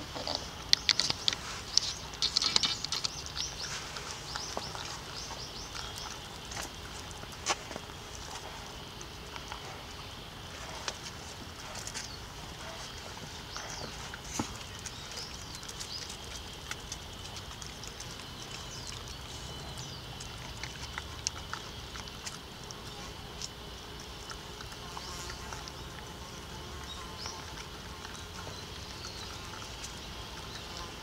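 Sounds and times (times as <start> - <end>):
insect drone: 0.0 - 31.0.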